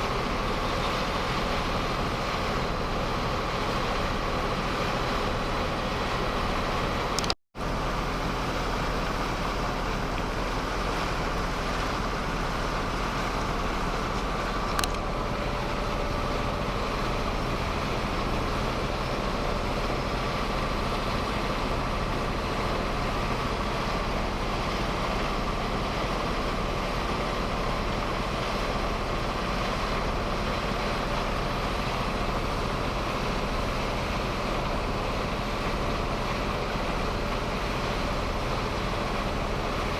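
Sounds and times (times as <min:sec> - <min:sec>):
boat engine running: 0:00.0 - 0:39.9
sharp click: 0:07.2 - 0:07.4.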